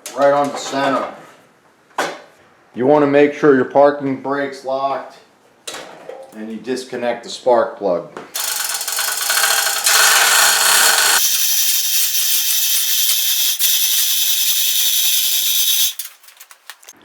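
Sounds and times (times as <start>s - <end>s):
chain rattling through hoist: 8.4s - 17.0s.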